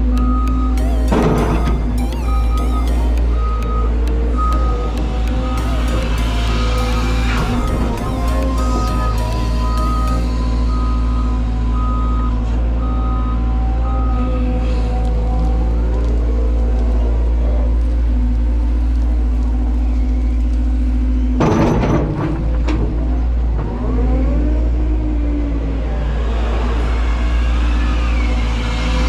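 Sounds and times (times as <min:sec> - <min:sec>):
excavator engine running: 0:00.0 - 0:12.2
warning alarm beeping: 0:00.1 - 0:13.3.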